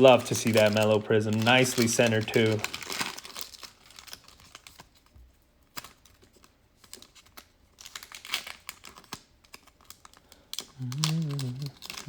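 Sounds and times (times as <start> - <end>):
cards and packaging rustling: 0.0 - 12.0.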